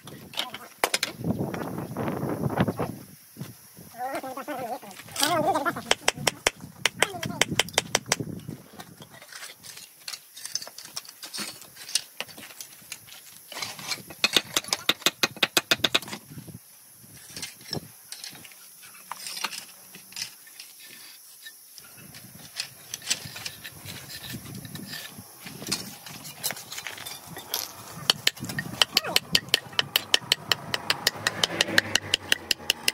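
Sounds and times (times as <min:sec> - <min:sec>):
hard tool tapping stone: 0:05.9 - 0:08.2, 0:14.2 - 0:16.1, 0:27.6 - 0:32.9.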